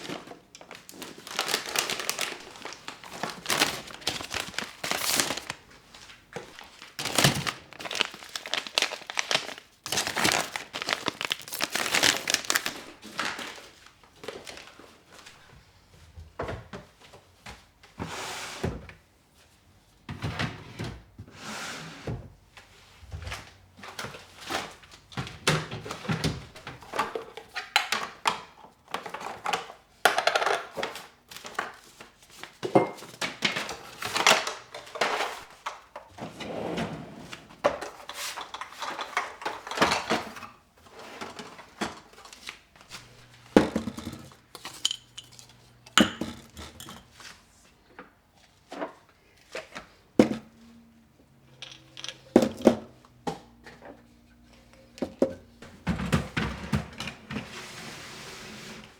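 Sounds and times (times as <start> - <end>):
dishes and cutlery clinking: 43.6 - 47.2.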